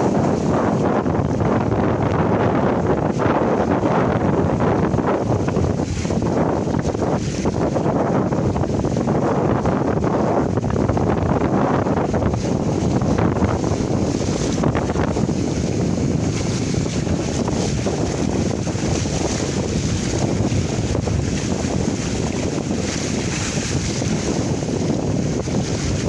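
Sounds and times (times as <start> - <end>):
water rushing past hulls: 0.0 - 26.0
wind buffeting microphone: 0.0 - 26.0.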